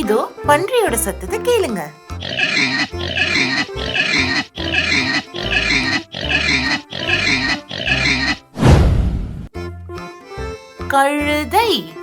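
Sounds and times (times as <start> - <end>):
children's music with bass line: 0.0 - 8.5, 9.6 - 12.0
pig grunting: 2.2 - 8.5.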